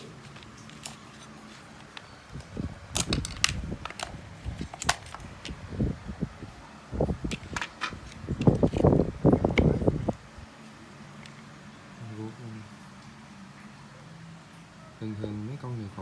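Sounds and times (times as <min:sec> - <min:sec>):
sharp plastic clicks and knocks: 0:02.9 - 0:05.6.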